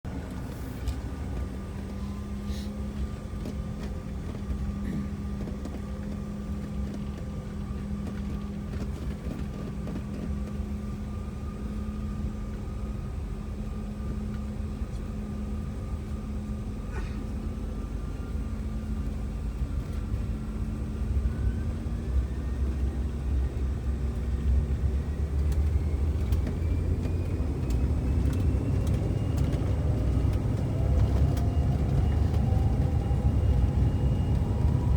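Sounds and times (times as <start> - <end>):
jet engines spooling up: 17.4 - 34.9.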